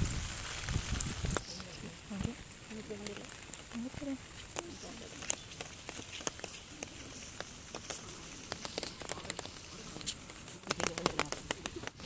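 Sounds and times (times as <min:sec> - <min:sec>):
rain falling: 0:00.0 - 0:12.0
raindrops ticking: 0:00.0 - 0:12.0.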